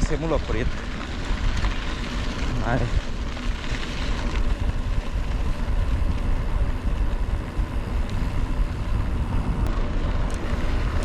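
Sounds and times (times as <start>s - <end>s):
wind buffeting microphone: 2.8s - 11.0s.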